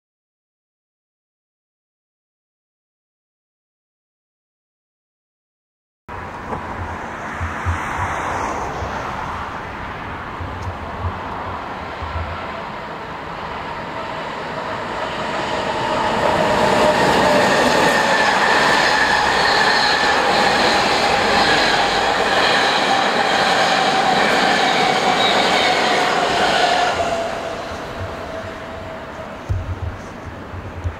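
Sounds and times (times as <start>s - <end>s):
electric train passing: 6.1s - 30.9s.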